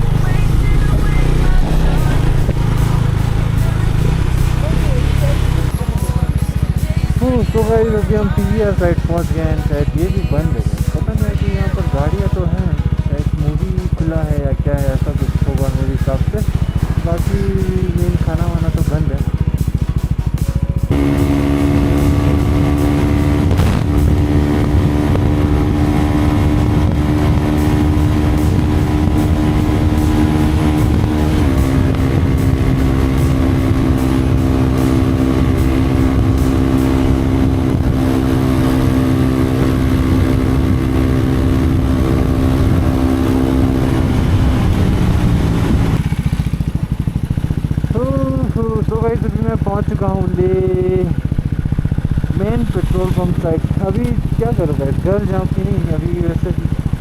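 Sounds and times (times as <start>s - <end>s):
wind rumble on microphone: 0.0s - 12.2s, 20.8s - 48.1s
motorcycle engine cruising: 0.0s - 57.0s.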